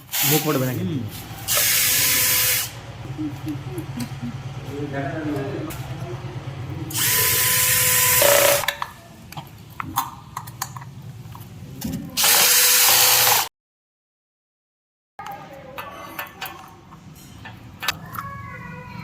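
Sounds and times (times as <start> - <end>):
electric drill whining: 6.9 - 8.7, 12.2 - 13.5.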